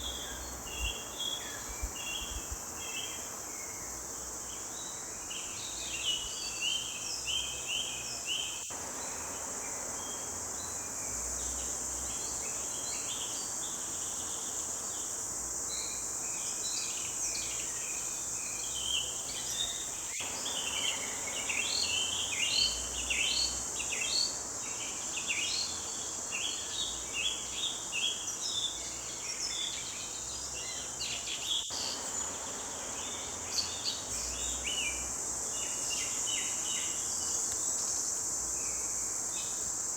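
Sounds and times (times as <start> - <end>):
forest birds chirping: 0.0 - 39.9
high-pitched insect drone: 17.0 - 24.5.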